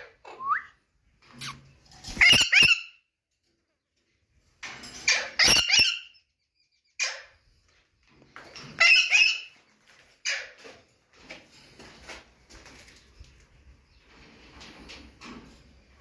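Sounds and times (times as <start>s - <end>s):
parakeets squawking: 1.4s - 2.9s, 5.1s - 6.1s.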